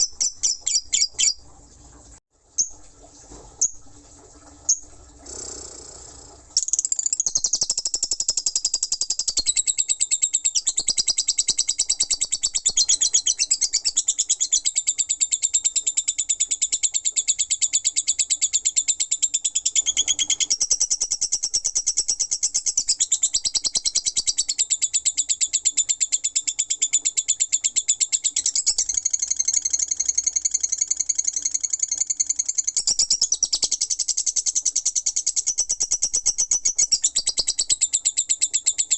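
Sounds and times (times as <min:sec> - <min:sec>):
lovebird chirping chatter: 0:00.0 - 0:01.4.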